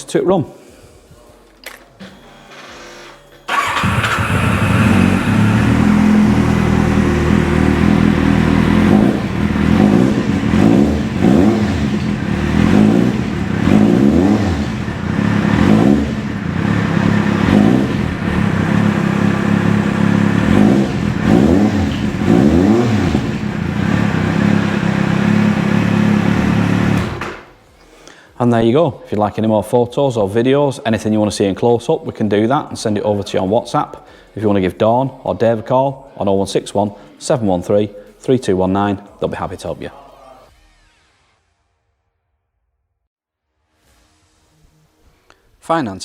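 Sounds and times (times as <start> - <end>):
motorcycle engine revving: 3.5 - 27.5.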